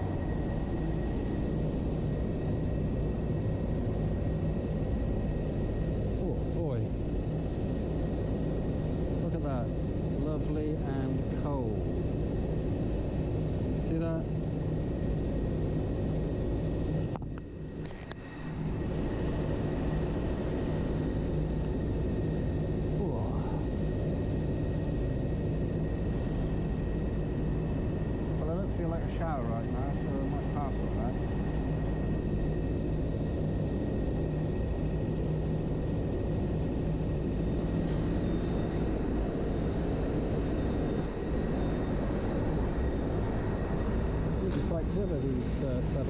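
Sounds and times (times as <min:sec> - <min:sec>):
low vehicle rumble with hiss: 0:44.2 - 0:46.0.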